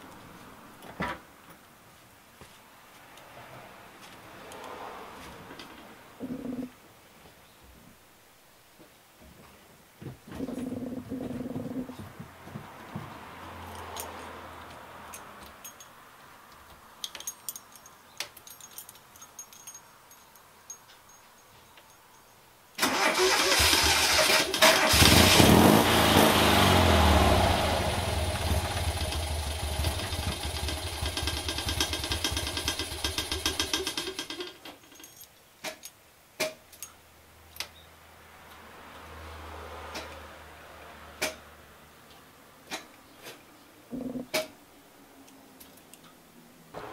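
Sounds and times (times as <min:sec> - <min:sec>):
engine starting and dying: 0:22.8 - 0:34.6.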